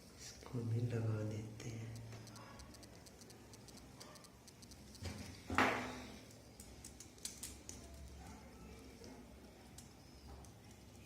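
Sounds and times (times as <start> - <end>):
smartphone parts clicking: 2.0 - 5.5.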